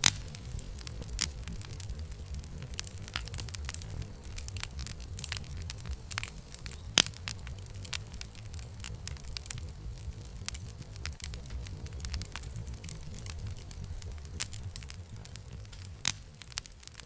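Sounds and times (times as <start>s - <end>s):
low rumble of flames: 0.0s - 17.0s
wood fire crackling and popping: 0.0s - 17.0s.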